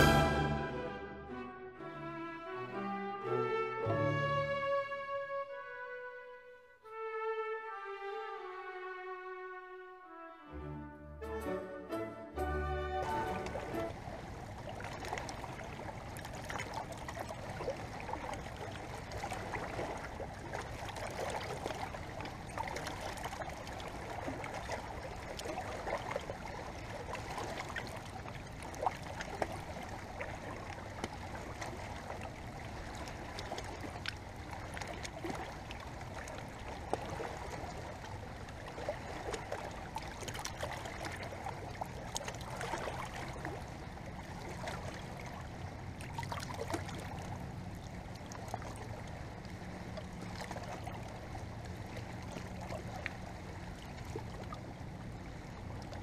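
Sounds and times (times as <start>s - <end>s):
water trickling and lapping: 11.3s - 56.0s.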